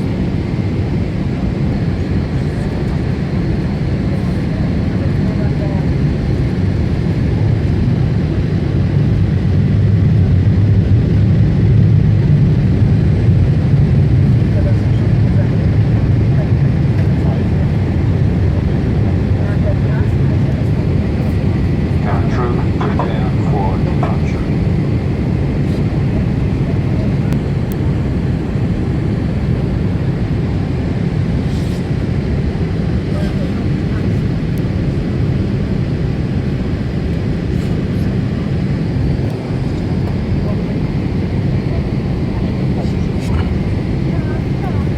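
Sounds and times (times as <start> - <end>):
airplane cabin rumble: 0.0 - 44.9.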